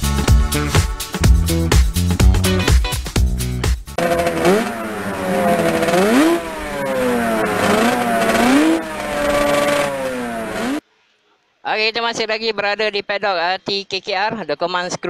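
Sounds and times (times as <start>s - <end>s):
racing motorcycle engine revving: 4.0s - 10.8s.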